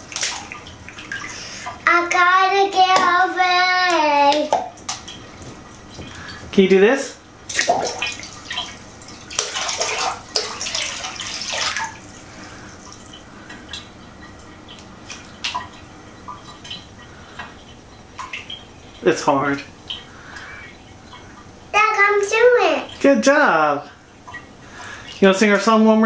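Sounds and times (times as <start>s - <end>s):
water splashing: 0.0s - 6.8s, 7.4s - 26.0s
water dripping: 7.4s - 23.2s, 23.8s - 25.8s.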